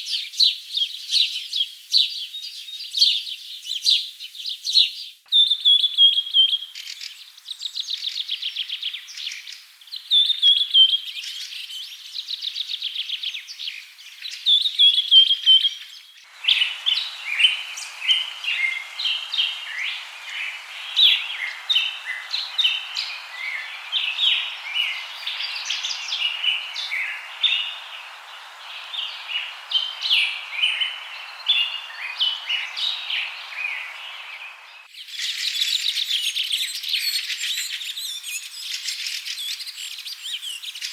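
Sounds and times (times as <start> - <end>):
chorus of birds chirping: 0.0 - 40.9
steady hiss: 16.3 - 36.0
bird trills: 16.3 - 40.9.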